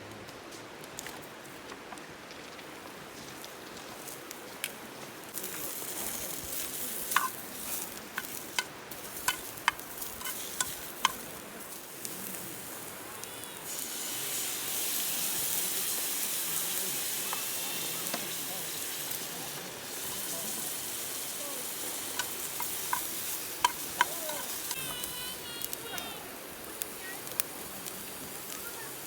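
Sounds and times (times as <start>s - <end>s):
steak sizzling in a pan: 5.3s - 29.0s.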